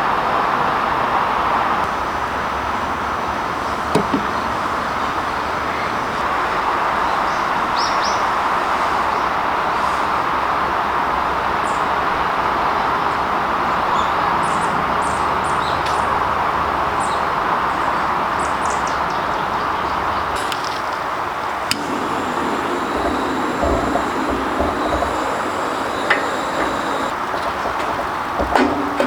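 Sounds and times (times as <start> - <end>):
small birds chirping: 21.7 - 27.1
loud steady rushing noise: 21.7 - 27.2.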